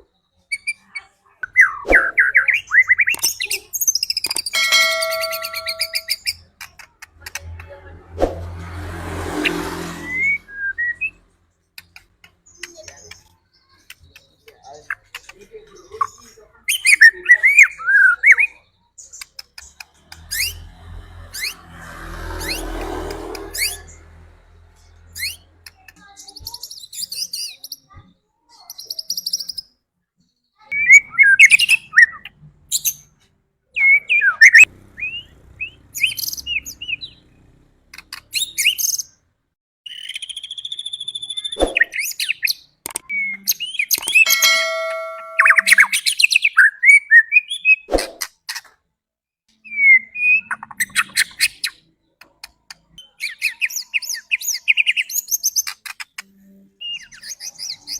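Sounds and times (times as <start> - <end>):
bird singing whistled phrases: 10.1 - 11.2, 39.9 - 47.9.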